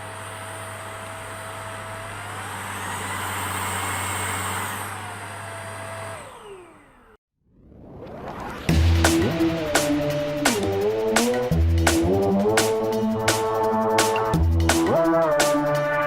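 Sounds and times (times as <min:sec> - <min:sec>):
stick vacuum motor whining: 0:00.0 - 0:07.2.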